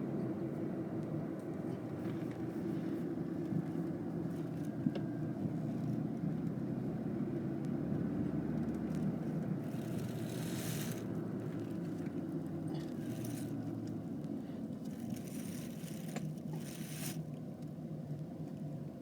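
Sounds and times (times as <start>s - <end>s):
car engine and tyre rumble: 0.0s - 19.0s
tyre hiss on wet road: 9.7s - 11.1s.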